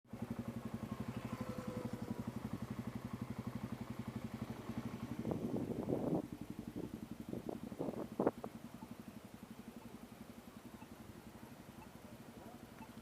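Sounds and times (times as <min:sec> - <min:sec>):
dirt bike engine idling: 0:00.1 - 0:13.0.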